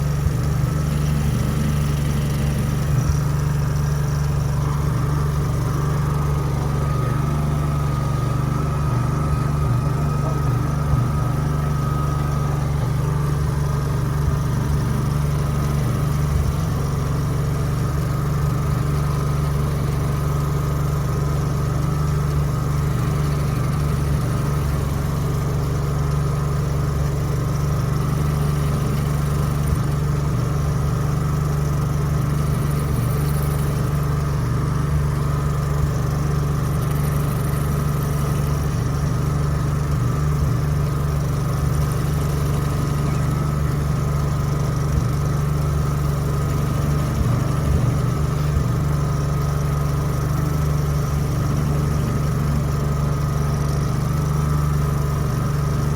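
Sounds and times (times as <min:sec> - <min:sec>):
faint high whine: 0:00.0 - 0:27.6
generator running: 0:00.0 - 0:55.9.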